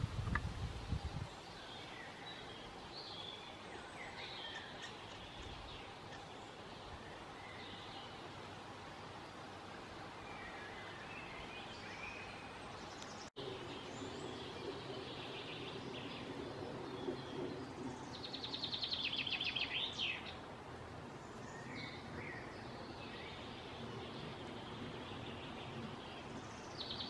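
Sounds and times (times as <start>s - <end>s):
steady outdoor hiss: 0.0s - 27.0s
birds chirping: 1.1s - 27.0s
rapid repeated bird calls: 1.3s - 8.4s.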